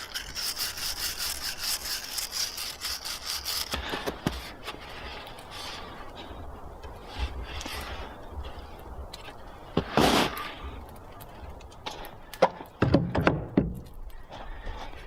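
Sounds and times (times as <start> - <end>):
knocks and thuds of hard objects: 12.4 - 13.9.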